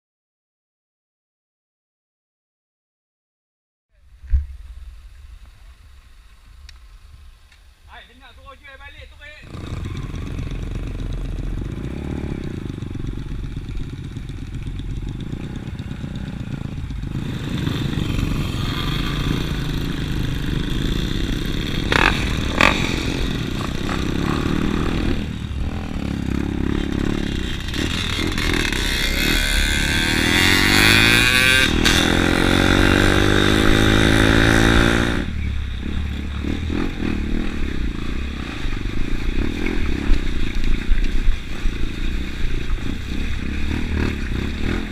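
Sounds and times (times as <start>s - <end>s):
dirt bike engine revving: 9.2s - 44.9s.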